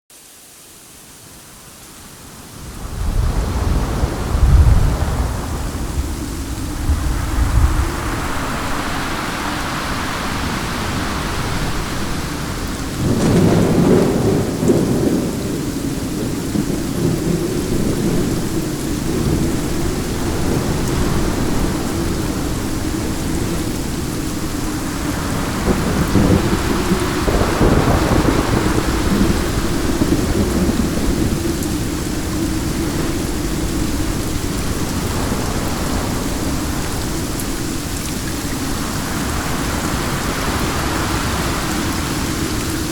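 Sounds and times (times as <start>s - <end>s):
heavy rain: 0.1s - 42.9s
wind: 0.1s - 42.9s
deep rumbles: 2.9s - 9.0s.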